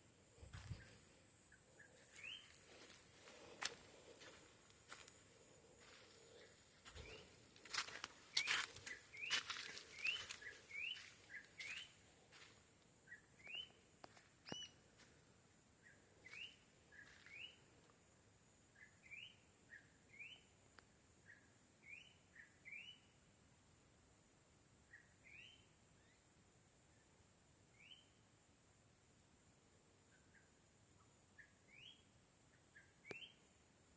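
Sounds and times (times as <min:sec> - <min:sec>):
bird chirping: 0:00.5 - 0:04.4, 0:05.4 - 0:12.0, 0:13.0 - 0:13.8, 0:14.4 - 0:14.8.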